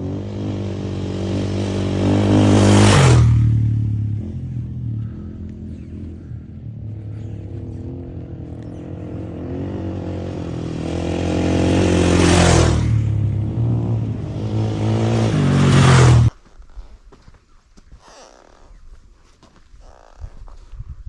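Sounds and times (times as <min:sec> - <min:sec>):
motocross bike engine revving: 0:00.0 - 0:16.3.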